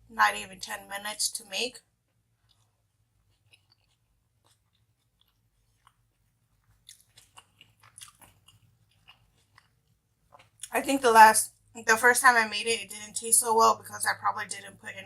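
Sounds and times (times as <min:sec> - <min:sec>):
chewing and wet mouth clicks: 0:02.4 - 0:10.7.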